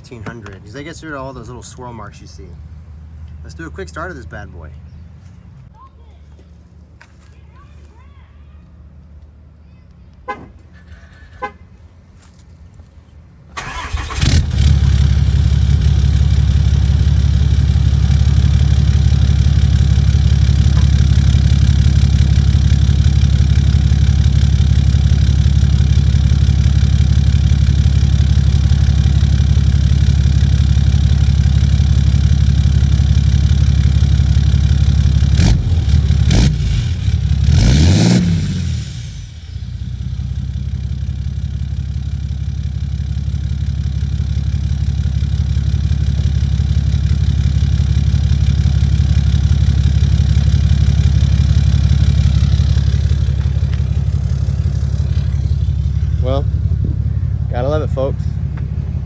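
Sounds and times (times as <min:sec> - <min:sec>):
diesel engine starting: 0:13.4 - 0:59.0
engine revving: 0:13.6 - 0:33.0, 0:33.8 - 0:40.0, 0:47.2 - 0:59.0
diesel engine idling loudly: 0:13.6 - 0:59.0.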